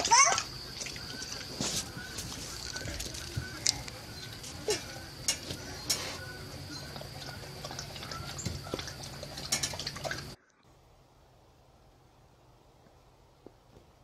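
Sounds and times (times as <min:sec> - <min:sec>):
lapping and splashing water: 0:00.0 - 0:05.0, 0:05.6 - 0:10.5.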